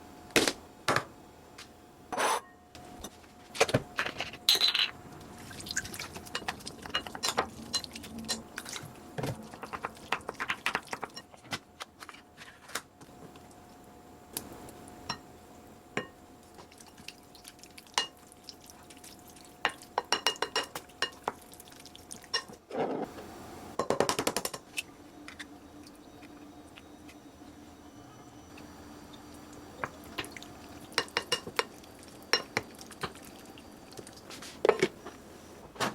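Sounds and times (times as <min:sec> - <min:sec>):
faint steady hum: 0:00.0 - 0:35.9
utensils clinking on dishes: 0:04.0 - 0:05.0, 0:06.0 - 0:11.5, 0:19.6 - 0:21.3, 0:22.2 - 0:22.6, 0:29.8 - 0:33.2
liquid sounds: 0:05.0 - 0:11.4, 0:16.4 - 0:22.6, 0:28.5 - 0:35.0.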